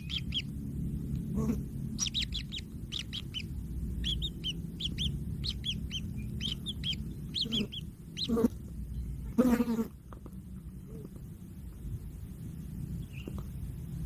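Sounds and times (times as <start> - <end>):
bird chicks chirping: 0.0 - 9.6, 12.9 - 13.6.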